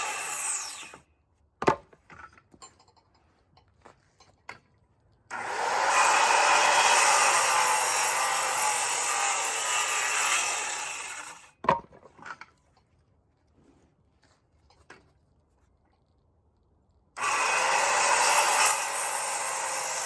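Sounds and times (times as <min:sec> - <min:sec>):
power tool cutting wood: 0:00.0 - 0:01.0, 0:05.3 - 0:11.5, 0:17.2 - 0:20.0.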